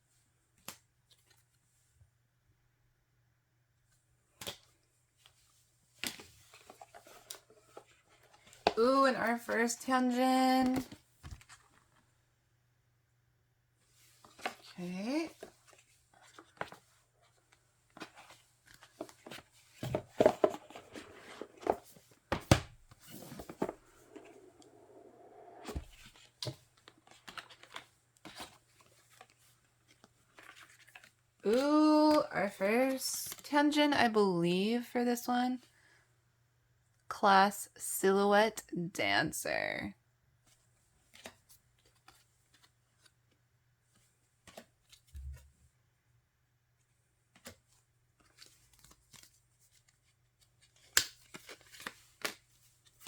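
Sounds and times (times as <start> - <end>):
rubbing or sliding: 23.0 - 26.1.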